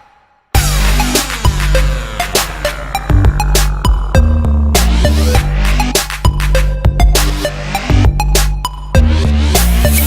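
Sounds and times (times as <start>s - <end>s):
electronic music with heavy bass: 0.0s - 10.0s
falling synth sweeps: 0.6s - 5.6s.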